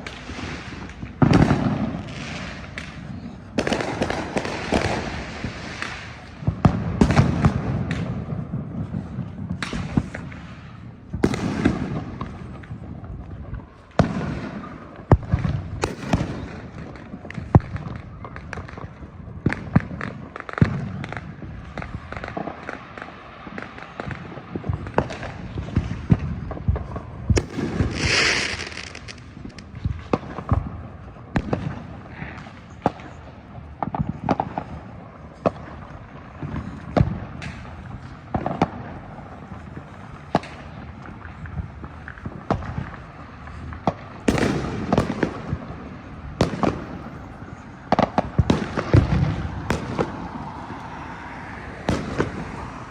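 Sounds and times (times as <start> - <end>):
loud firework hiss: 0.0 - 12.7, 27.1 - 29.7
fireworks bangs and pops: 0.0 - 52.9.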